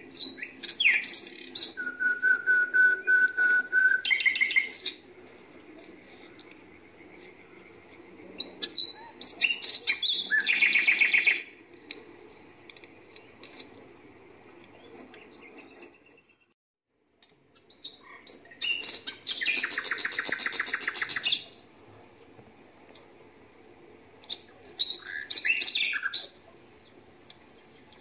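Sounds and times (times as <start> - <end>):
small songbird chirping and trilling: 8.4 - 11.4, 14.7 - 16.6.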